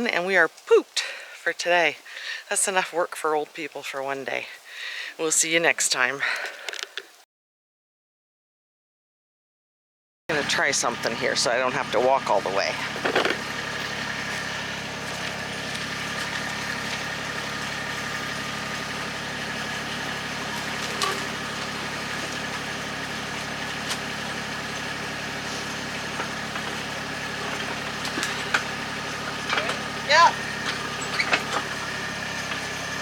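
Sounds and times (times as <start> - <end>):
vehicle engine running: 10.3 - 33.0.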